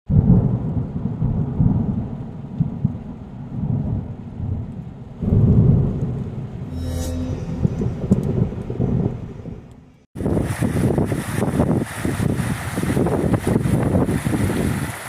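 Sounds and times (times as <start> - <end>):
deep noisy rumble: 5.1 - 10.6.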